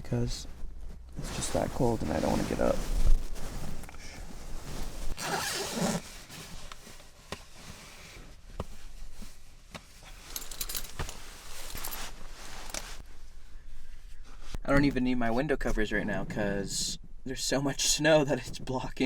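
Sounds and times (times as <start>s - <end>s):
fabric rustling: 0.6s - 13.0s
zipper being pulled: 4.9s - 6.3s, 10.2s - 13.0s.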